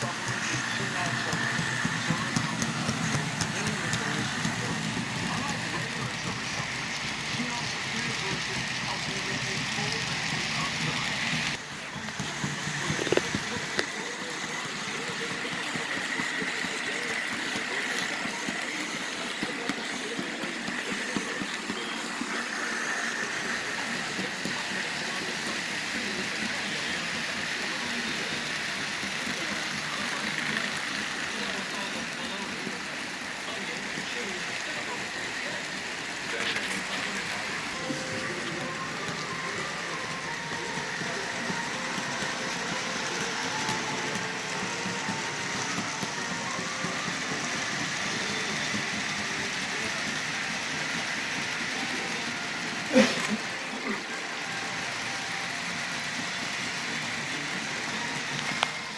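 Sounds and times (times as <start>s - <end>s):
model train motor whine: 0.0s - 58.9s
wheels clicking over rails: 35.6s - 52.6s.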